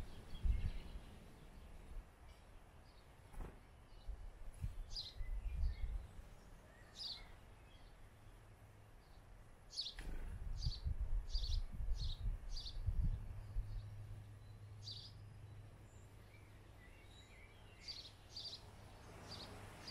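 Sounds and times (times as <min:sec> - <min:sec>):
small bird chirping: 0:04.8 - 0:08.4, 0:09.0 - 0:10.0, 0:10.6 - 0:19.9.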